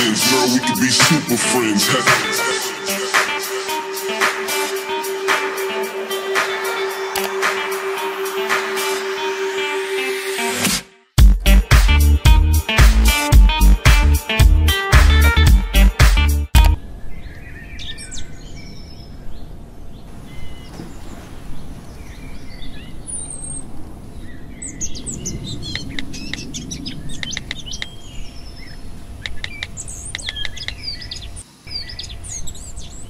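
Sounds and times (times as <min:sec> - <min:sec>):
small birds chirping: 0:16.6 - 0:33.0.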